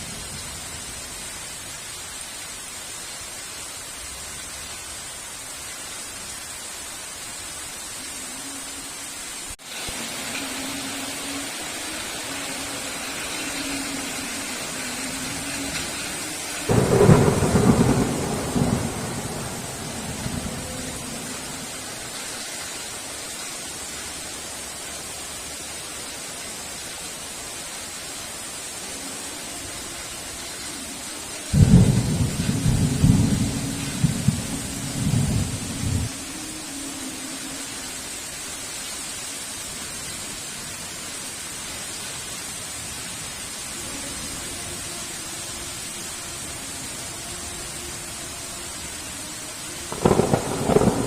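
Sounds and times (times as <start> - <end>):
heavy rain: 0.0 - 51.0
thunderclaps: 15.3 - 21.5, 31.6 - 36.1, 49.9 - 51.0.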